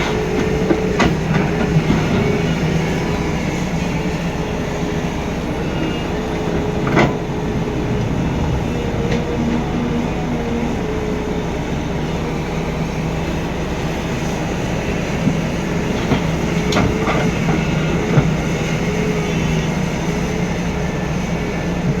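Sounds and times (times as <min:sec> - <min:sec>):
truck engine rumbling: 0:00.0 - 0:20.8.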